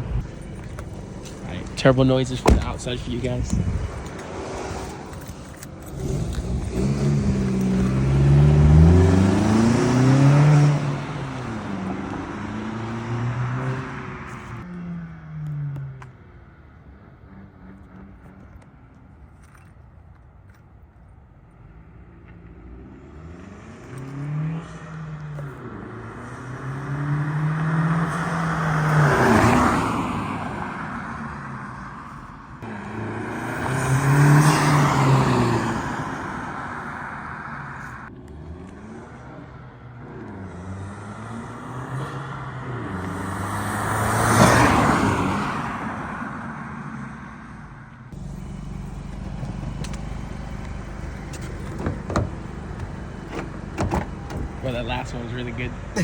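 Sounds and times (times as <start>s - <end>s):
car engine accelerating past: 4.1s - 16.0s, 22.5s - 47.2s.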